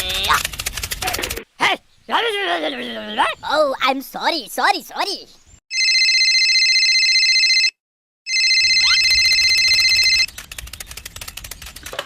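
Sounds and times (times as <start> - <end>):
faint rapid clicking: 0.2 - 1.4, 10.2 - 12.0
telephone ringing: 5.7 - 10.3.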